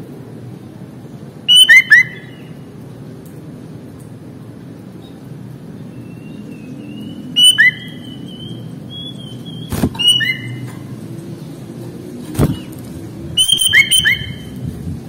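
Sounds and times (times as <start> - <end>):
thin drawn-out whistle: 1.5 - 2.2, 7.0 - 10.5, 13.4 - 14.4
bird singing whistled notes: 1.5 - 2.5, 5.9 - 10.6, 13.3 - 14.6.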